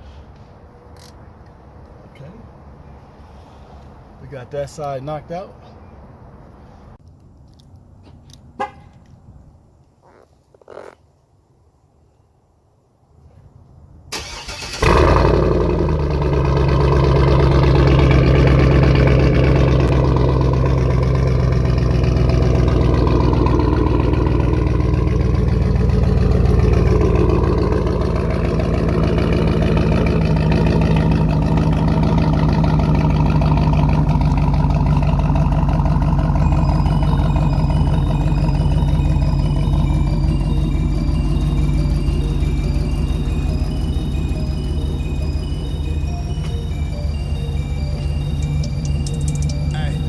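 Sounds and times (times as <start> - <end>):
truck engine cranking and idling: 13.7 - 50.0.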